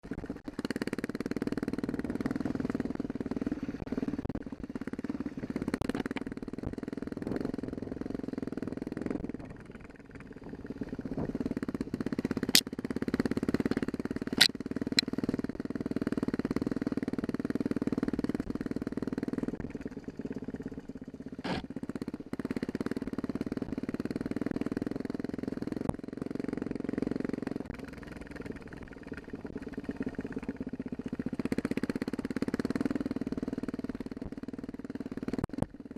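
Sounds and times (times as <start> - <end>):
dirt bike engine revving: 10.5 - 16.9, 21.4 - 25.8.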